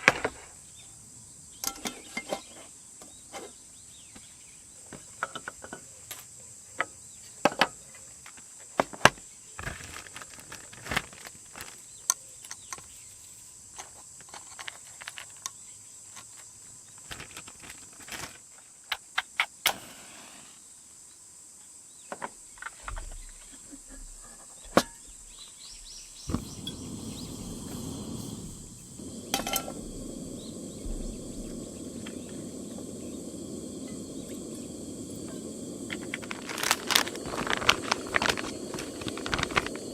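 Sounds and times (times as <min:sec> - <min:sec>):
high insect trill: 0:09.2 - 0:39.9
low rushing noise: 0:26.3 - 0:39.9.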